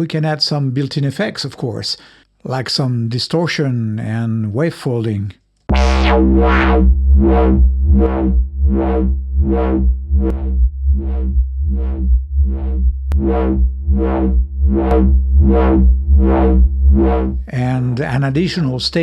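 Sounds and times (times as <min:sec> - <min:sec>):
wobbling synthesizer bass: 0:05.7 - 0:19.0.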